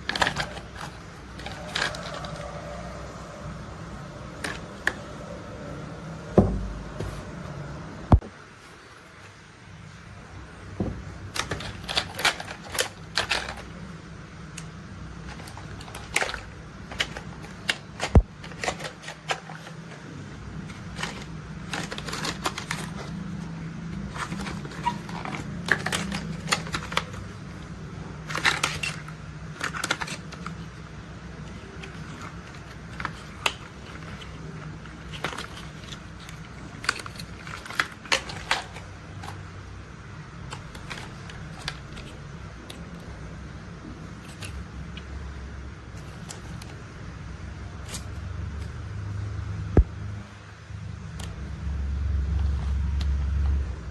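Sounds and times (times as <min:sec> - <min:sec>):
plastic toy vehicles clicking: 0:00.0 - 0:05.2, 0:11.2 - 0:13.9, 0:14.5 - 0:39.7, 0:40.4 - 0:43.3
low steady hum: 0:00.0 - 0:53.9.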